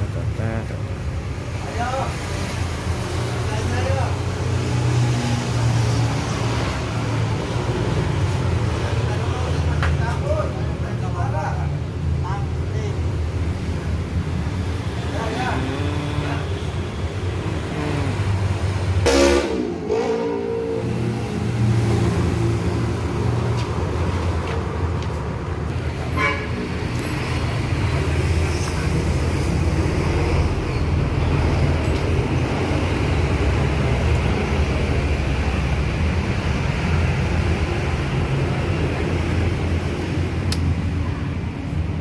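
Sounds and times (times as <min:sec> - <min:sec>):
horn toot falling in pitch: 0:19.1 - 0:21.1.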